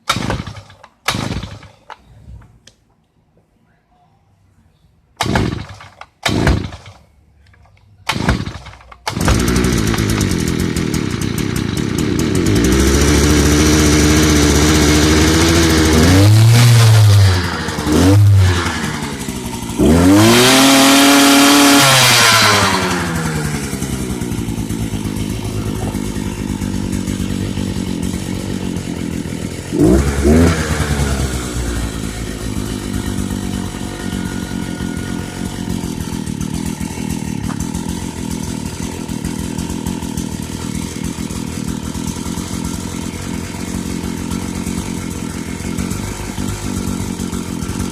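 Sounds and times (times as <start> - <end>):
small two-stroke engine revving: 0.1 - 1.7, 5.2 - 7.0, 8.1 - 47.9.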